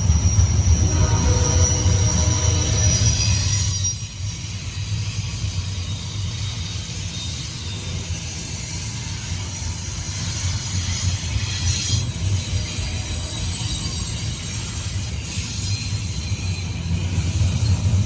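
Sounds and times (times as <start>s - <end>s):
train cars rumbling: 0.0s - 4.1s
wheels hissing on rail: 0.0s - 18.0s.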